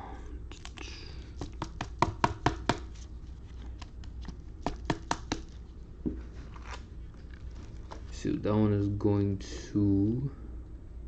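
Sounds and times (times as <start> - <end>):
trading cards snapping: 0.5 - 5.6.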